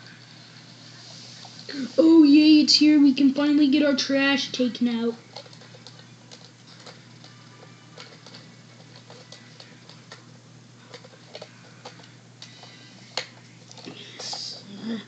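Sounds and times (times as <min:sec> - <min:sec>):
steady low hum: 0:00.0 - 0:15.0
small clicks and taps of toy: 0:05.3 - 0:10.2.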